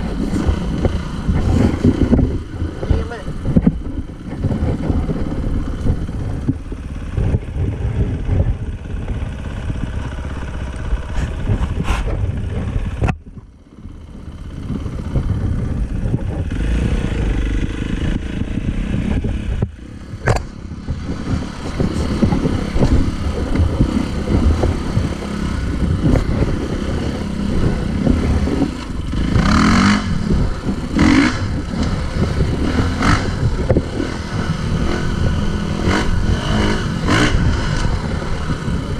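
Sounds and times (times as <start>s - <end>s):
dirt bike engine running: 0.0s - 38.9s.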